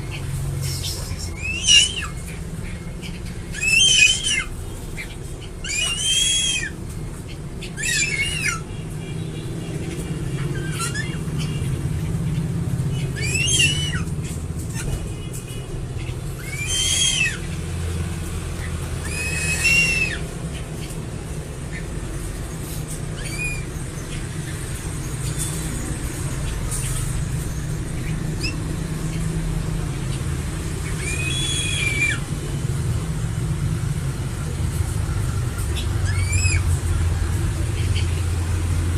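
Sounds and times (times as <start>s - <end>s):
eagle whistled calls: 0.6s - 6.8s, 7.6s - 8.7s, 10.4s - 11.7s, 12.9s - 14.1s, 16.0s - 17.6s, 19.0s - 20.3s, 23.2s - 24.2s, 27.6s - 29.2s, 30.8s - 32.3s, 35.8s - 36.8s.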